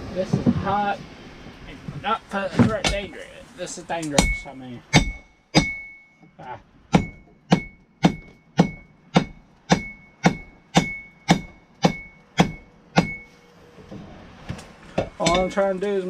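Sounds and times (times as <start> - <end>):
hammer striking steel on anvil: 4.2 - 6.0, 6.9 - 13.4.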